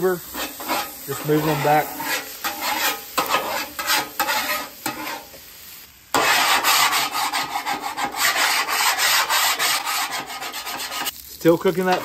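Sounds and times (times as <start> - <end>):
bench scraper scraping griddle: 0.0 - 5.4, 6.1 - 11.1
metal spatula scraping griddle: 0.0 - 5.5, 6.1 - 12.0
food sizzling on griddle: 0.0 - 12.0.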